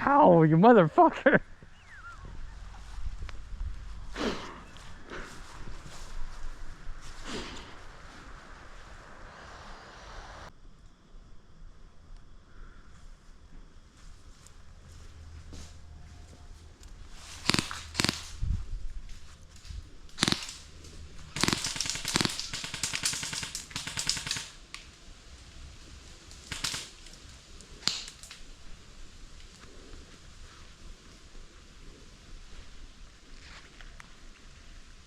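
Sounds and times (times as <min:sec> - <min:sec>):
airsoft guns firing: 0:17.4 - 0:18.4, 0:20.2 - 0:24.6, 0:26.4 - 0:27.0, 0:27.8 - 0:28.4.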